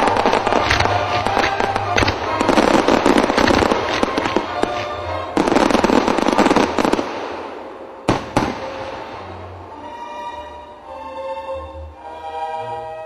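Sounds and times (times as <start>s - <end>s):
fireworks bangs: 0.0s - 9.4s
fireworks crackling: 0.0s - 9.6s
faint orchestral music: 0.0s - 13.0s.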